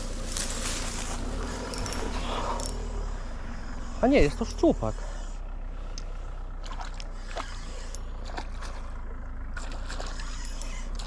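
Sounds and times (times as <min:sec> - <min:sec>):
steady low rumble: 0:00.0 - 0:11.0
small clicks: 0:01.6 - 0:02.8
water splashing and sloshing: 0:05.8 - 0:11.0.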